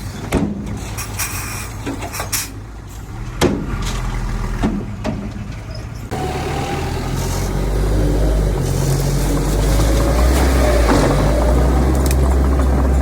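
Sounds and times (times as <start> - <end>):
heavy diesel machinery running: 1.7 - 13.0.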